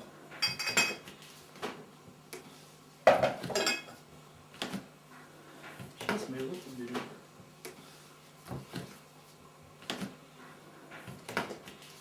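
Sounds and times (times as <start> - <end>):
teapot clinking: 3.2 - 4.0.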